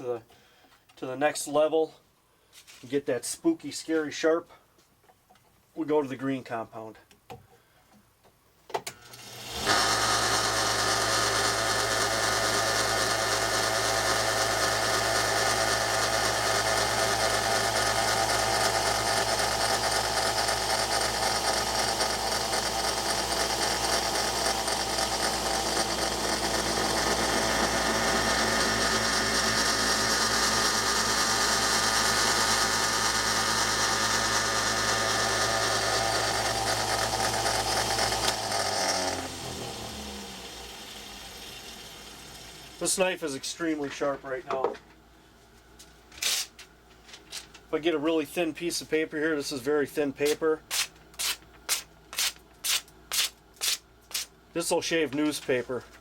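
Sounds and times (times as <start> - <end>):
belt sander running: 9.1 - 44.2.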